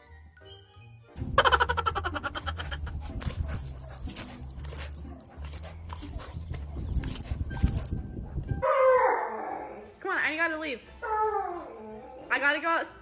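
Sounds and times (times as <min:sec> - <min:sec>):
dog whining: 0:01.4 - 0:09.9.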